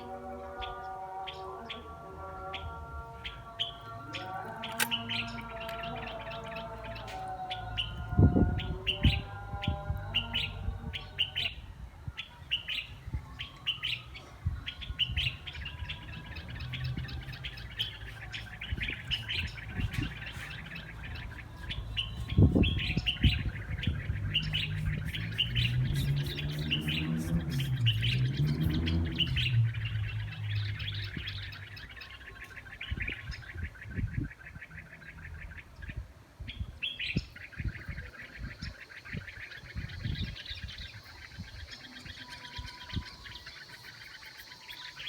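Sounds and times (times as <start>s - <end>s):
small birds chirping: 0.0s - 45.0s
sharp clicks: 4.4s - 5.9s.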